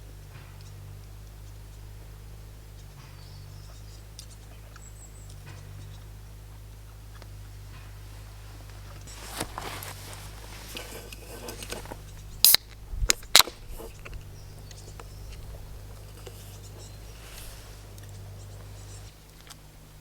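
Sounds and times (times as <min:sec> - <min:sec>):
low hum: 0:00.0 - 0:20.0
rustling handling noise: 0:07.8 - 0:20.0
loud sharp clicks: 0:12.4 - 0:13.6.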